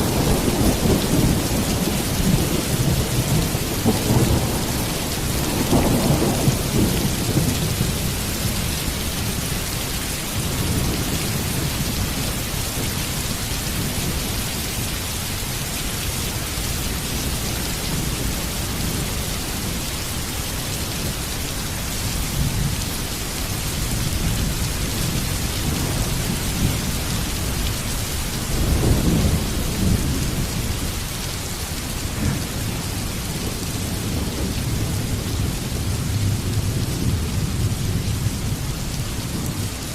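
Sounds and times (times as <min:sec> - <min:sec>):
low rolling thunder: 0:00.0 - 0:09.5, 0:23.6 - 0:31.2, 0:31.8 - 0:39.9
heavy rain: 0:00.0 - 0:39.9.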